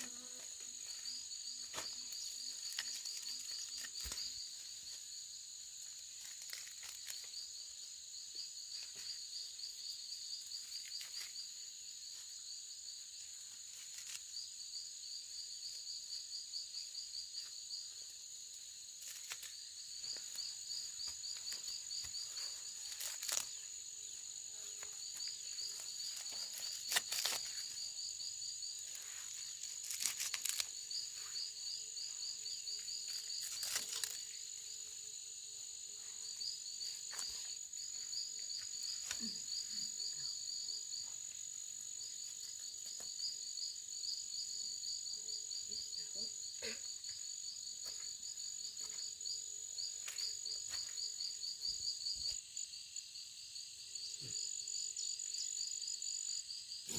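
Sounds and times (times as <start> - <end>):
insects buzzing: 0.0 - 56.9
sharp cracks or rustles: 22.9 - 23.5, 26.1 - 27.7, 29.6 - 30.8, 33.2 - 34.2.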